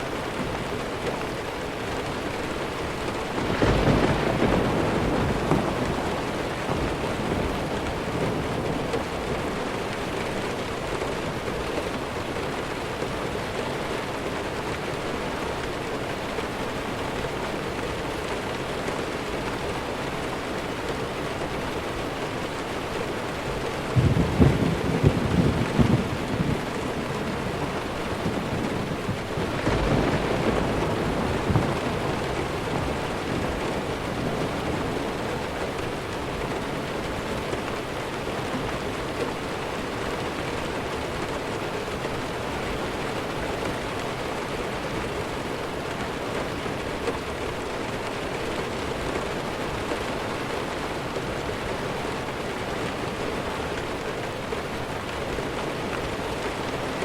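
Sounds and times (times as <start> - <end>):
steady rain: 0.0 - 57.0
thunder rolling: 3.2 - 10.0, 23.9 - 35.8.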